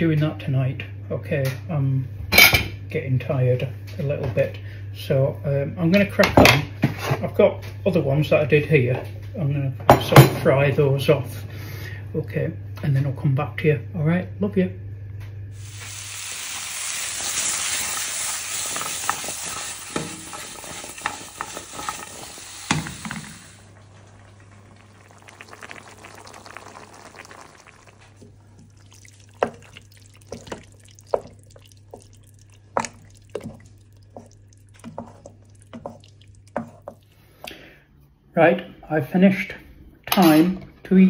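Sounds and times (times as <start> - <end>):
pumpkin sizzling in oil: 15.6 - 37.1
spoon scraping a pot: 18.7 - 23.2, 29.3 - 37.1
wooden spoon knocking: 29.4 - 37.0.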